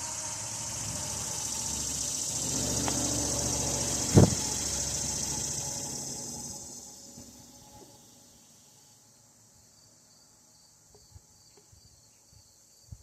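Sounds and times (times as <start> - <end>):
vehicle engine passing by: 0.0 - 8.1
insects chirring: 0.0 - 13.0.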